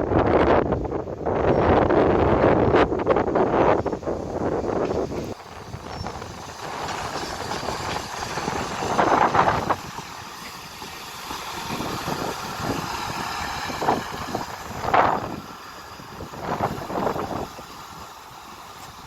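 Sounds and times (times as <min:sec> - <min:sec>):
diesel train rumbling: 0:00.0 - 0:19.0
wind buffeting microphone: 0:00.0 - 0:19.0.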